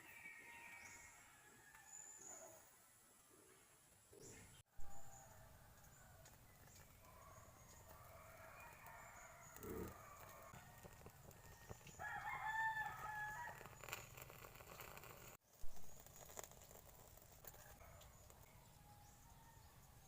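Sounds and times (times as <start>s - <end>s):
distant rooster crow: 4.7s - 13.8s, 17.4s - 20.0s
rooster crowing: 7.5s - 13.7s.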